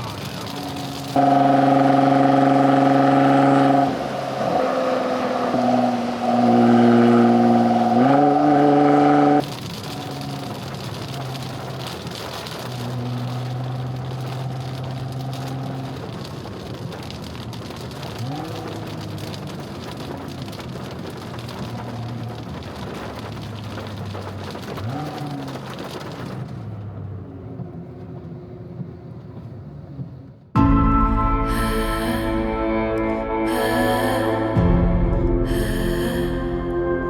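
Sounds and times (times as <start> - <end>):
car engine revving: 0.0 - 17.0, 30.6 - 37.0
road noise hiss: 0.0 - 30.0, 31.1 - 37.0.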